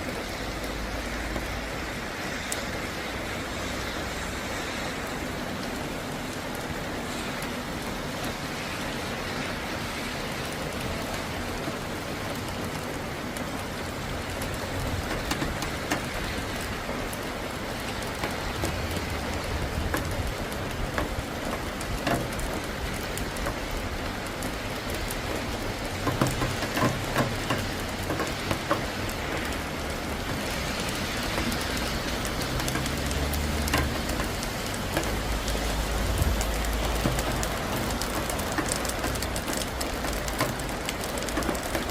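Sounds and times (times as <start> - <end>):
rain falling: 0.0 - 41.9
raindrops ticking on a surface: 0.0 - 41.9.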